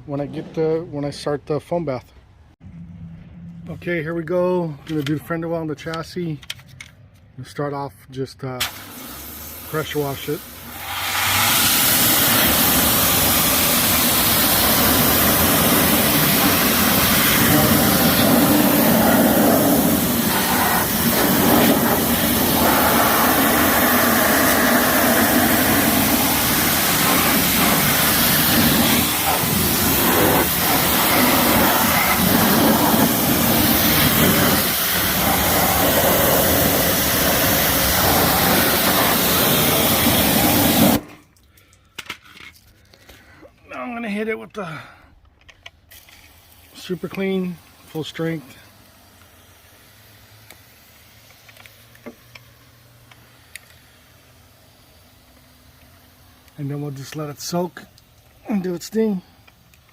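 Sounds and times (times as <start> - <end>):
pressure washer spraying water: 8.6 - 41.2, 45.9 - 59.9.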